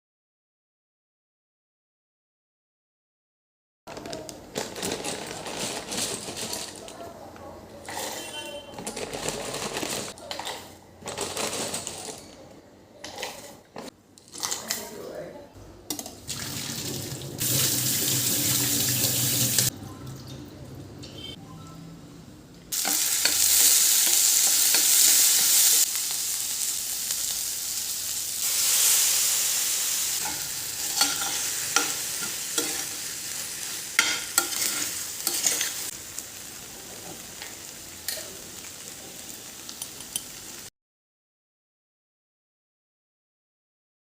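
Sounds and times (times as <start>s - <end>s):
utensil scraping a pan: 7.9s - 12.2s, 34.0s - 35.9s
food sizzling in a pan: 17.4s - 19.7s, 22.7s - 40.7s.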